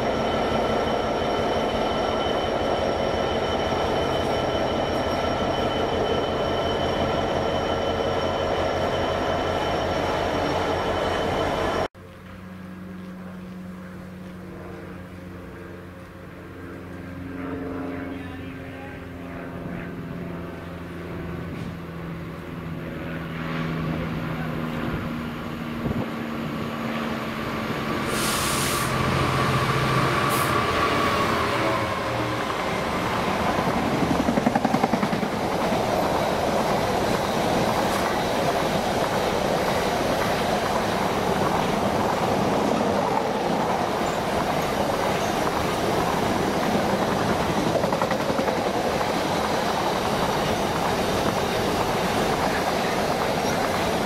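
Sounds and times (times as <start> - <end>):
diesel locomotive engine: 0.0 - 54.0
train wheels rumbling: 26.8 - 54.0.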